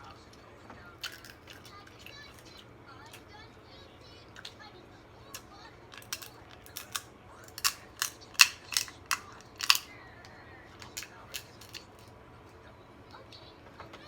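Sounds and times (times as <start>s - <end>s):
crab shells cracking: 1.0s - 3.2s, 5.3s - 10.0s, 10.8s - 12.1s.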